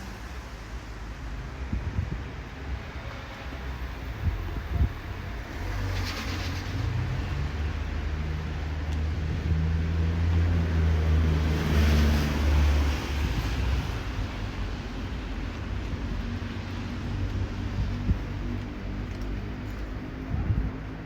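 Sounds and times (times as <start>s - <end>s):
road noise: 0.0s - 21.0s.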